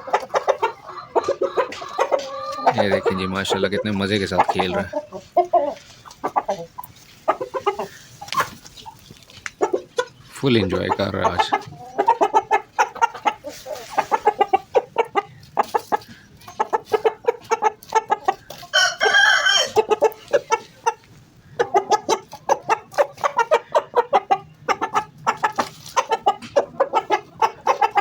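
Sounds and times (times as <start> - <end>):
chickens clucking: 0.0 - 28.0
loud high-pitched chicken call: 18.6 - 20.0.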